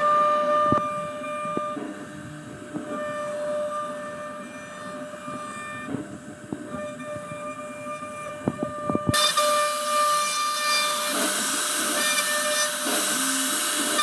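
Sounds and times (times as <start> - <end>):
router spindle whining: 0.0 - 14.0.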